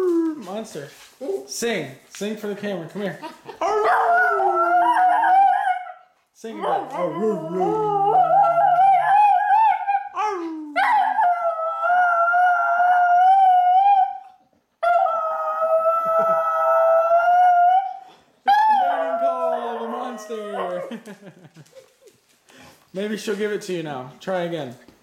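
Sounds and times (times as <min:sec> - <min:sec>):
dog howling: 0:03.6 - 0:06.0, 0:06.7 - 0:20.9.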